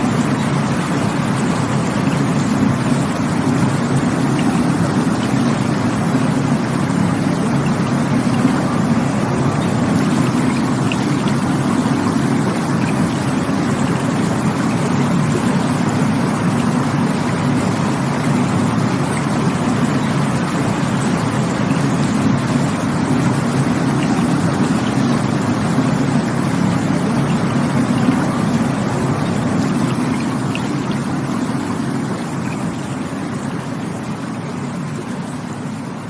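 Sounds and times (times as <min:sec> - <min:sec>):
rushing water: 0:00.0 - 0:36.0.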